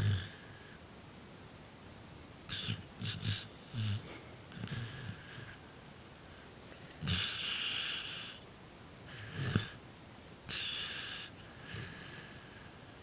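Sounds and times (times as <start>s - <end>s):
dog snoring: 0.0s - 0.8s, 2.5s - 6.4s, 7.0s - 8.4s, 9.0s - 9.8s, 10.5s - 13.0s.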